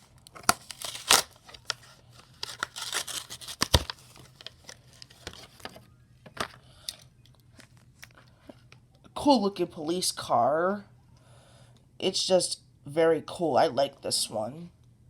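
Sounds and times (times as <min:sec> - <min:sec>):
card tearing: 0:00.0 - 0:05.7
plastic crinkling: 0:00.0 - 0:05.8.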